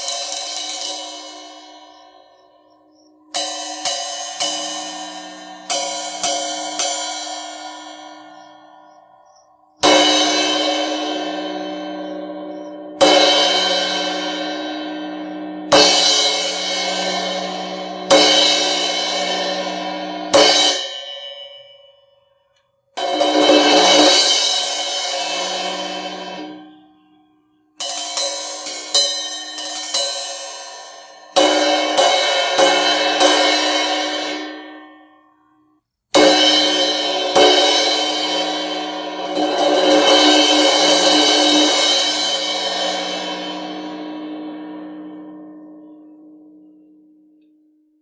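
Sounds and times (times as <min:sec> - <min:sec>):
crash cymbal strikes: 0:00.0 - 0:14.6, 0:36.2 - 0:45.2.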